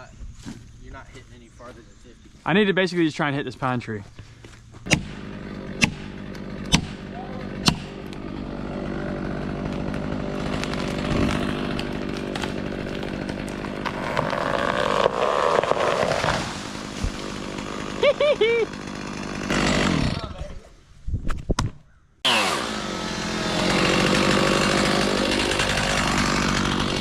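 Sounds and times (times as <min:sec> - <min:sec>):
chainsaw running: 0:04.9 - 0:20.4, 0:22.2 - 0:27.0.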